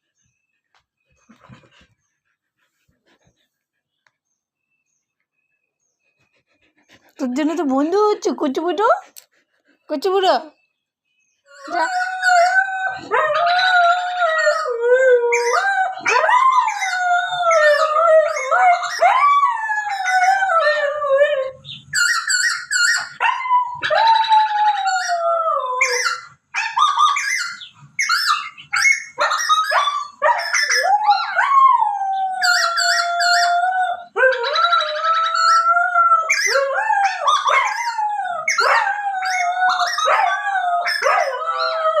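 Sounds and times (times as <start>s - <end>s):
dog whining and howling: 11.5s - 42.0s.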